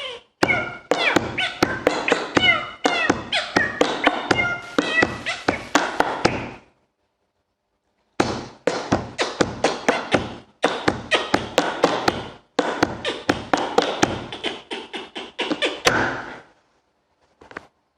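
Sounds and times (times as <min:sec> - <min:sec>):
man beatboxing: 0:08.7 - 0:16.4.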